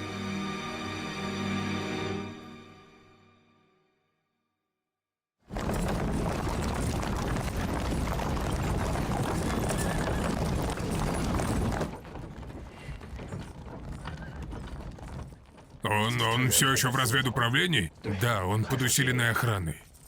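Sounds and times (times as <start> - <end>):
horses galloping: 5.5 - 20.0.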